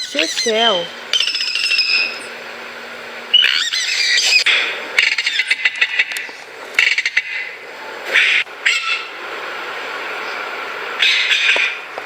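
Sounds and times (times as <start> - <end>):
bird whistling and squeaking: 0.0 - 2.3, 3.3 - 4.4
bird rattling calls: 0.0 - 2.4, 3.3 - 7.5.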